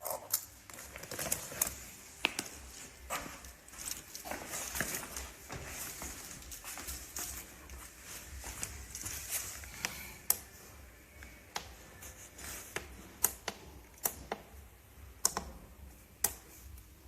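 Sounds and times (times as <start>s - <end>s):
sharp irregular clicks and taps: 11.2s - 11.8s, 12.7s - 16.9s.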